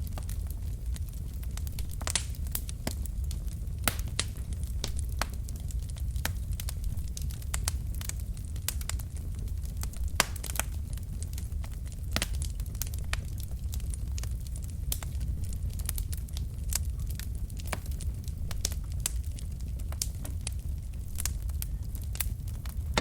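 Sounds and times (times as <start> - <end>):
flames rumbling: 0.0 - 23.0
logs crackling and popping: 0.0 - 23.0.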